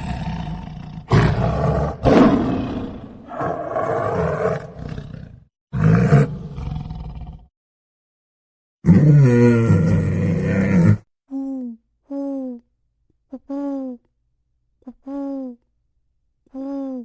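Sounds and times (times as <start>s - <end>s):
large animal roaring: 0.0s - 7.5s, 8.8s - 11.0s.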